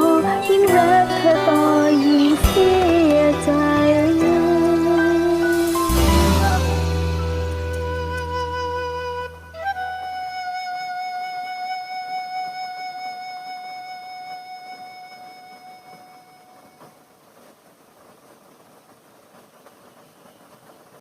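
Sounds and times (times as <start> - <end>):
faint hiss: 0.0 - 21.0
long held melody note: 4.2 - 16.9.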